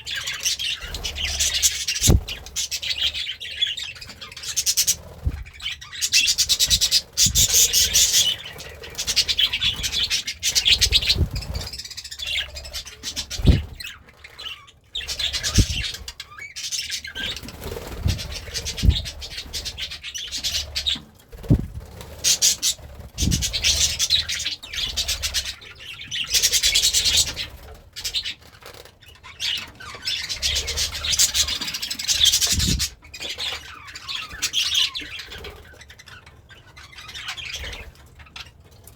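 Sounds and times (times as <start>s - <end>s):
low thumps: 2.0s - 2.4s, 13.4s - 13.8s.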